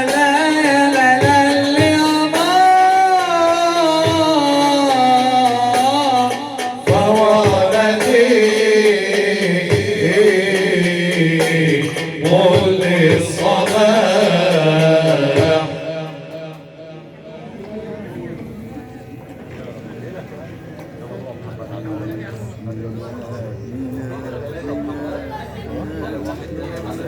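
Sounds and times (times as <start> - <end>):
musical accompaniment: 0.0 - 17.2.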